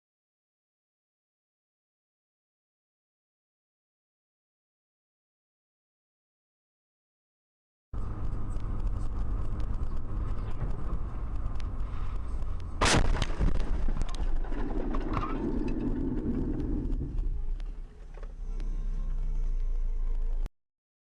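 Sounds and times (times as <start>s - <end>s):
vehicle engine and road rumble: 8.0s - 20.5s
loud collision bang: 12.8s - 16.2s.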